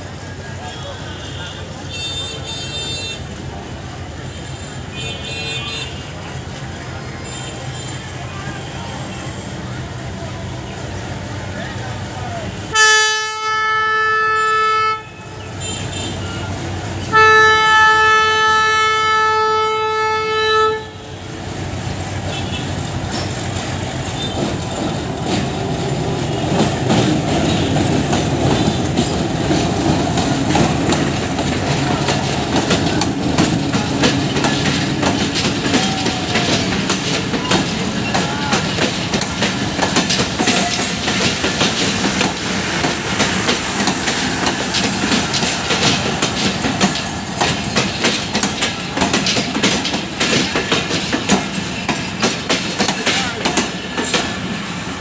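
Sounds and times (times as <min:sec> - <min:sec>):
locomotive horn blasts: 0:12.7 - 0:21.2
wheels clicking over rail joints: 0:21.7 - 0:55.0.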